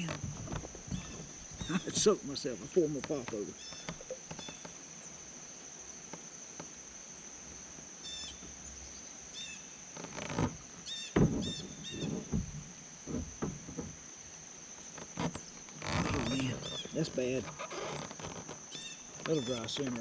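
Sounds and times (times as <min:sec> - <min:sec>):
knocks and thumps: 0:00.0 - 0:04.6, 0:10.0 - 0:14.0
high-pitched insect drone: 0:15.0 - 0:20.0.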